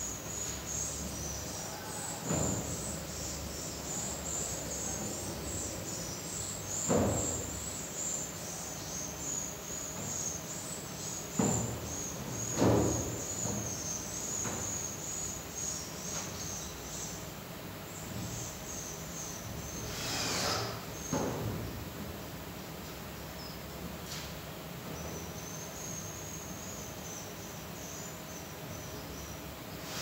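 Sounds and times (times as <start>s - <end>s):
dull knocks: 2.1s - 3.6s, 11.3s - 14.8s.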